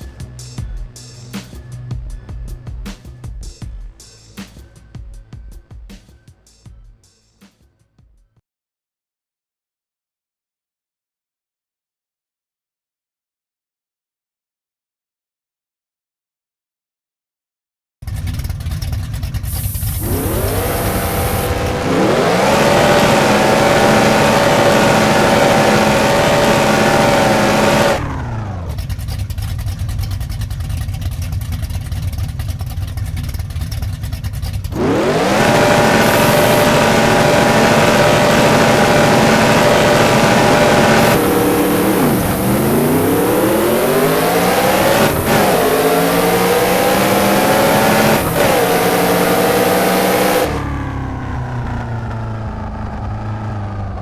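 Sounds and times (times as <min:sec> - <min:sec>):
race car engine revving: 0:18.2 - 0:30.7, 0:33.2 - 0:54.0.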